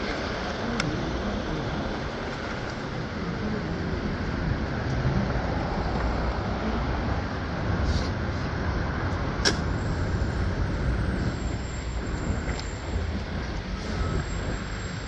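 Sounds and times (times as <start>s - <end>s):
faint shifting whine: 0.0s - 15.0s
moving vehicle rumble: 0.0s - 15.0s.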